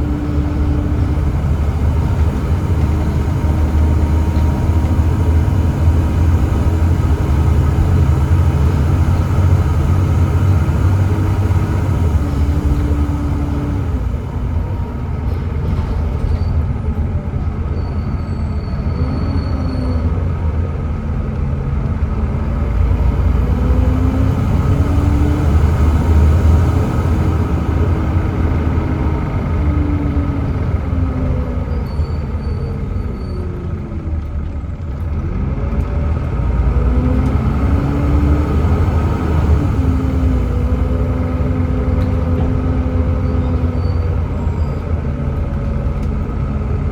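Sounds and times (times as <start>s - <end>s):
bus diesel engine rumbling: 0.0s - 46.9s.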